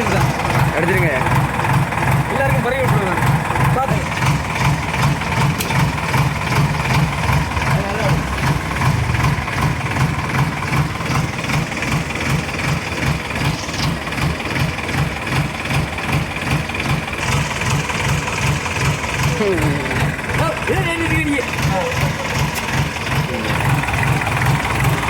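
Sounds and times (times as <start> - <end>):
backhoe diesel engine throbbing: 0.0 - 25.0.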